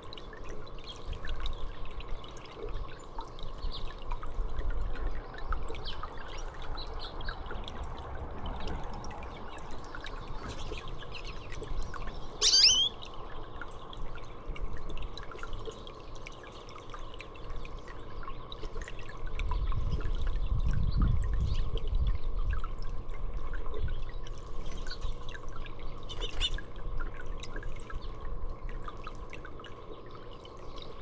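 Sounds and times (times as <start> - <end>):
water dripping and trickling: 0.0 - 31.0
high bird chirp: 12.4 - 13.0.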